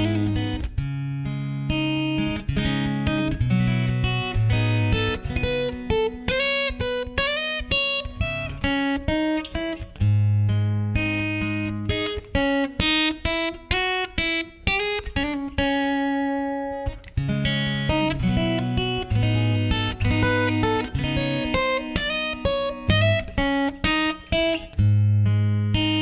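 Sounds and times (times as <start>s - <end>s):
acoustic guitar playing: 0.0s - 26.0s.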